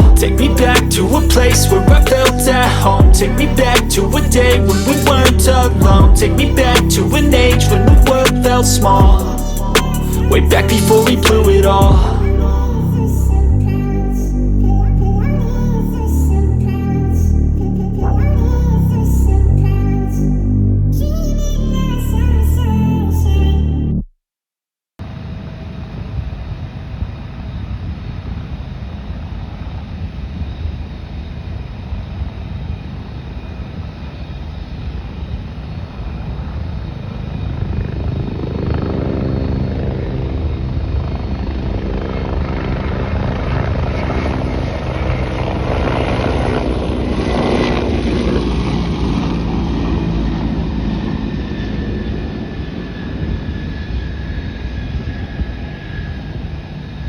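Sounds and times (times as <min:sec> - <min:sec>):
aircraft rumble: 0:00.0 - 0:24.0, 0:25.0 - 0:57.0
aircraft whooshing past: 0:35.6 - 0:57.0.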